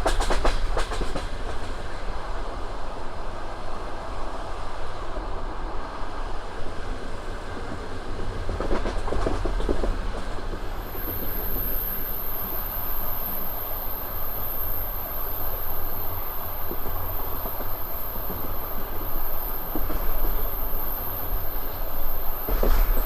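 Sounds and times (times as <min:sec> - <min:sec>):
train coach rumbling: 0:00.0 - 0:23.0
high-pitched steady whine: 0:10.8 - 0:23.0.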